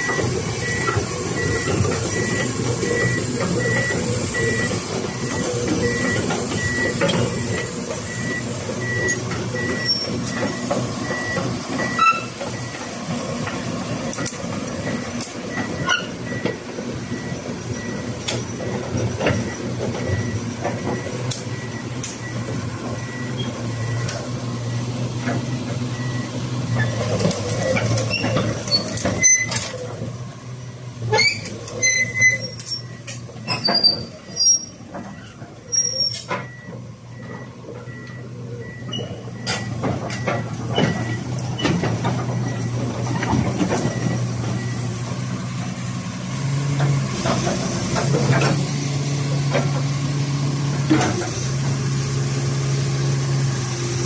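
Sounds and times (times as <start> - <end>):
excavator diesel engine running: 0.0 - 54.0
short high squeaks: 11.9 - 12.4, 27.6 - 29.8, 31.1 - 36.3.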